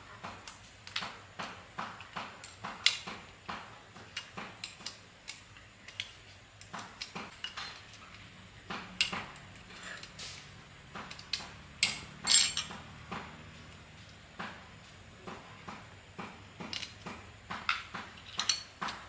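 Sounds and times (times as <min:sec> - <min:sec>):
metallic clinks of tools: 0:11.1 - 0:12.8, 0:18.2 - 0:19.0.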